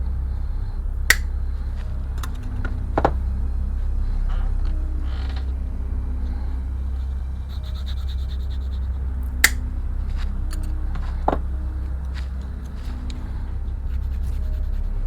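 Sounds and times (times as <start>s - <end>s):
steady low hum: 0.0s - 15.0s
sharp clicks: 1.1s - 1.3s, 9.4s - 9.7s.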